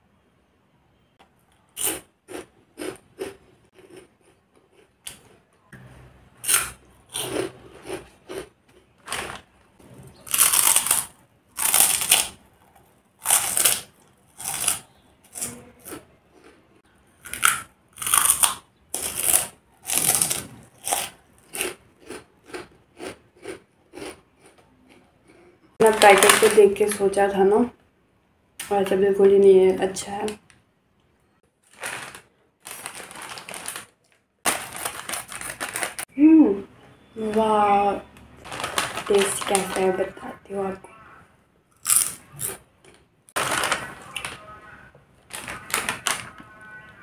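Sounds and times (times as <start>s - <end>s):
crisp snack crunching: 1.5s - 5.5s, 6.4s - 9.5s, 10.1s - 16.6s, 17.2s - 27.0s, 31.6s - 36.1s, 38.4s - 40.3s, 41.7s - 46.5s.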